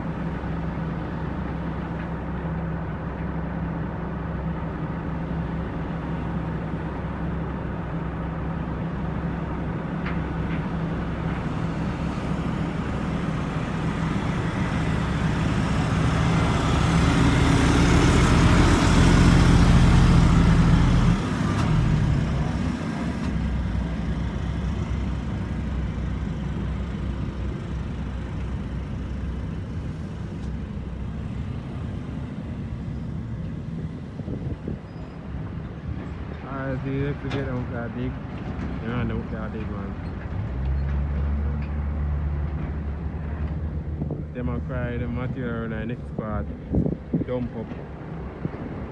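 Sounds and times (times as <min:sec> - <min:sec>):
diesel truck engine running: 0:00.0 - 0:48.9
road traffic noise: 0:00.0 - 0:48.9
vehicle passing: 0:10.9 - 0:25.2.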